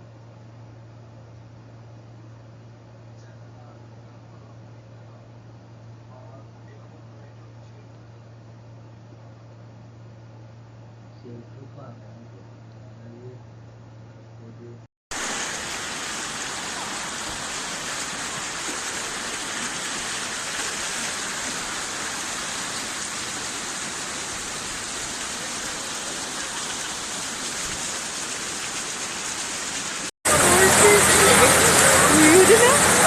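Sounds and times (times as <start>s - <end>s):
faint low hum: 0.0s - 14.9s
water rushing: 15.1s - 33.0s.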